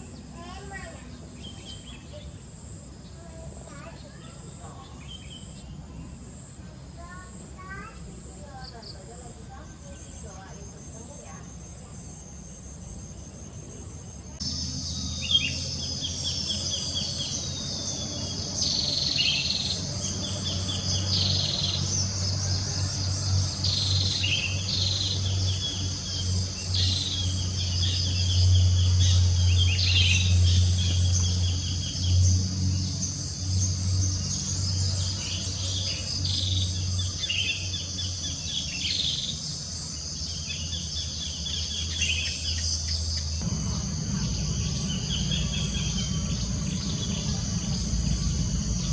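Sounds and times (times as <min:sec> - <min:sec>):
birds chirping and whistling: 0:00.0 - 0:02.4, 0:14.2 - 0:48.9
crickets chorus: 0:00.0 - 0:48.9
low steady rumble: 0:04.5 - 0:48.9.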